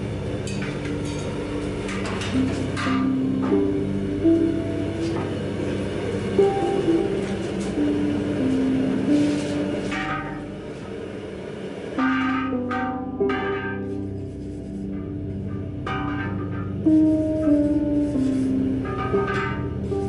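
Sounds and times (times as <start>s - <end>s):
background music: 0.0s - 20.0s
hammer striking anvil: 6.4s - 10.6s, 12.0s - 14.1s, 15.4s - 16.8s, 18.6s - 19.8s.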